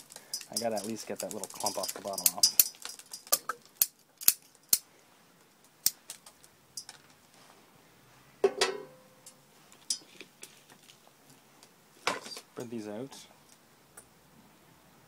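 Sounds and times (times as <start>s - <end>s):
hands and tool clicking: 0.0s - 7.2s.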